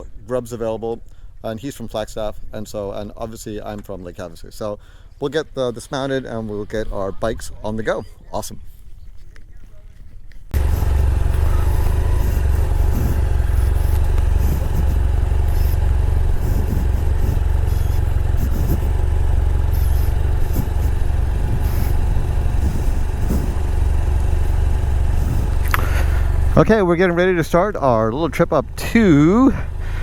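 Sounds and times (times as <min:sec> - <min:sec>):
motorcycle engine running: 0:10.5 - 0:30.0.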